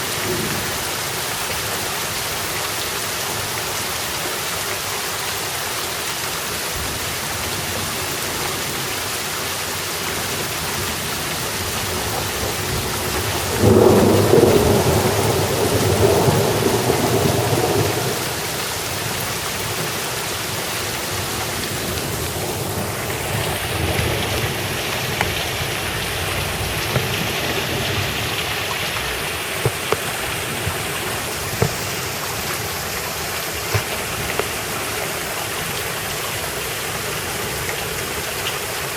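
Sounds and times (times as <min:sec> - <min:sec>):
steady rain falling: 0:00.0 - 0:38.9
thunder rumbling: 0:10.2 - 0:35.0.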